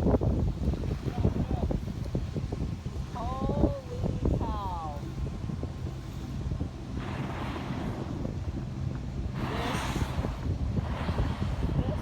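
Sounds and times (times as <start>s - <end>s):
wind buffeting microphone: 0.0s - 12.0s
rushing whooshes: 5.9s - 12.0s.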